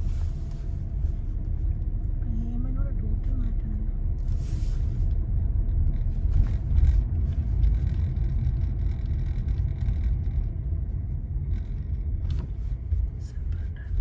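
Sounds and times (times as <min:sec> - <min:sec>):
car cabin road rumble: 0:00.0 - 0:14.0.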